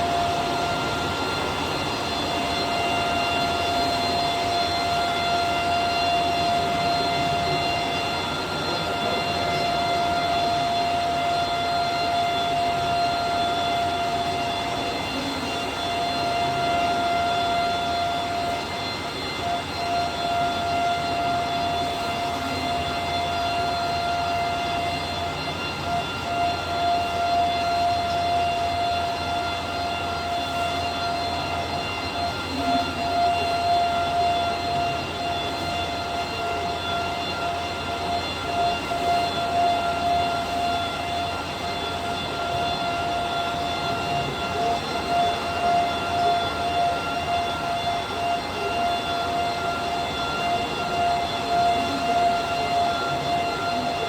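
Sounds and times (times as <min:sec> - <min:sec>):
machining centre high whine: 0:00.0 - 0:54.0
rushing machining noise: 0:00.0 - 0:54.0.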